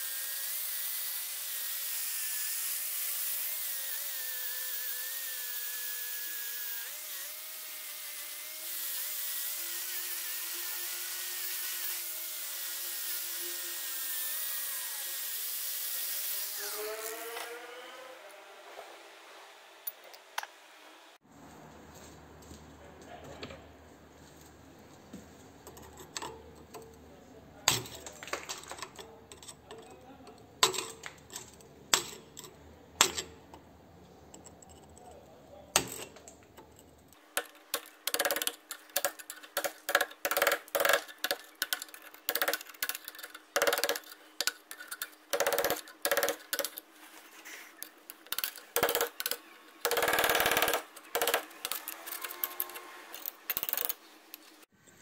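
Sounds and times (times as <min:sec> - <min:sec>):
tool scraping metal: 0:27.7 - 0:33.6, 0:35.8 - 0:54.6
hand tool clicks and knocks: 0:30.6 - 0:33.6, 0:35.7 - 0:46.8.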